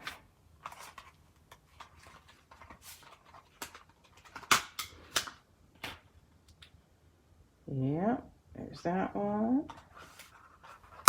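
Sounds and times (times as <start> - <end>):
paper sheets rustling: 0.0 - 4.5, 9.8 - 11.0.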